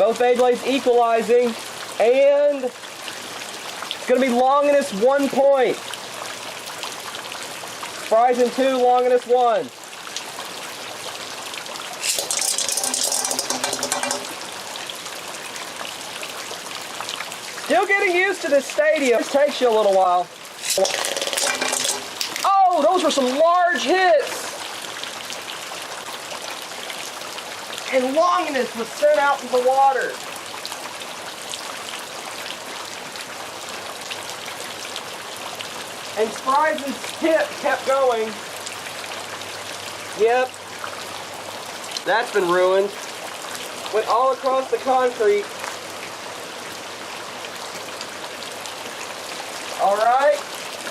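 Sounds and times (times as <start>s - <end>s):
steady rain falling: 0.0s - 50.9s
rattling clatter: 12.0s - 14.4s, 20.6s - 22.4s.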